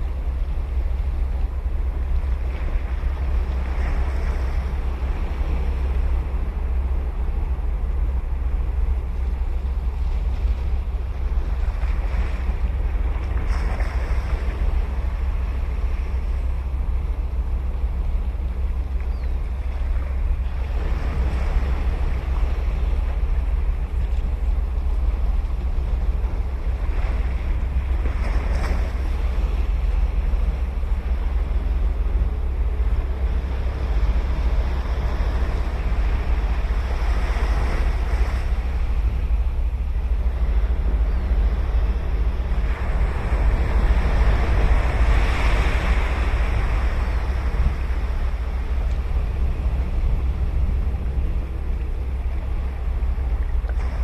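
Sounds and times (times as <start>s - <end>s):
wind rumble on microphone: 0.0s - 54.0s
waves breaking on sandy beach: 9.7s - 18.0s, 19.6s - 54.0s.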